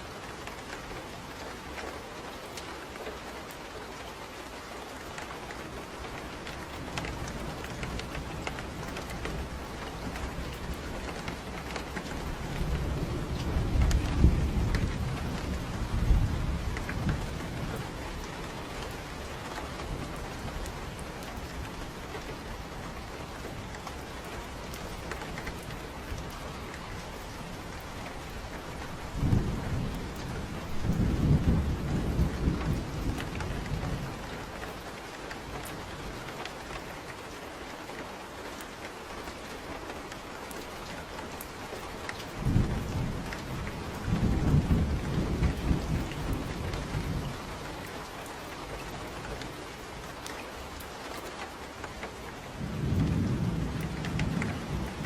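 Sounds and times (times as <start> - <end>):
steady rain: 0.0 - 55.0
low rolls of thunder: 5.1 - 36.8, 40.8 - 49.9, 52.2 - 55.0.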